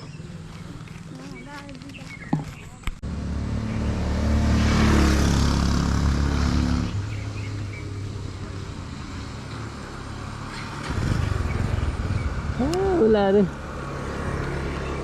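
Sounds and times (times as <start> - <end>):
motor vehicle engine humming: 0.0 - 15.0
low rumble: 10.9 - 13.4.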